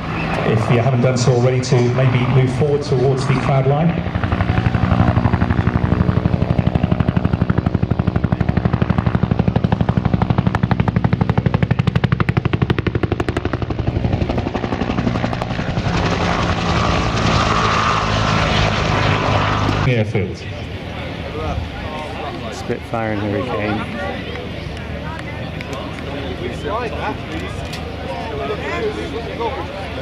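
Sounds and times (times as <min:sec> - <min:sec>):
helicopter rotor slapping: 0:00.0 - 0:19.9
helicopter engine whine: 0:00.0 - 0:30.0.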